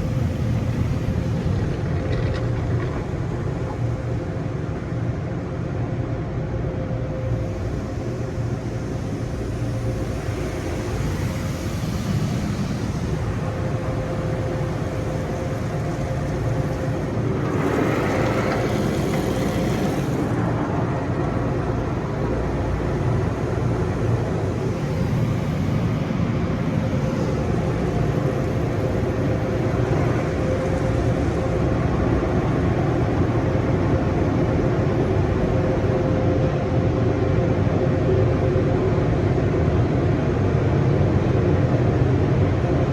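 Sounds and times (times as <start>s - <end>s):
constant tone: 0.0s - 37.4s
car wash equipment humming: 0.0s - 42.6s
hissing rush: 7.3s - 36.1s.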